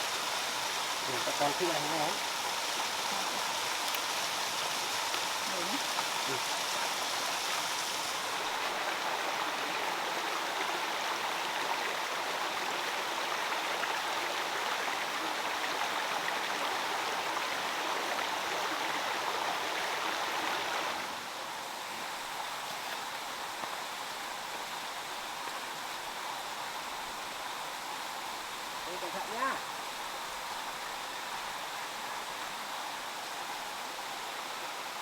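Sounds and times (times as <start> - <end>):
water running over stones: 0.0 - 35.0.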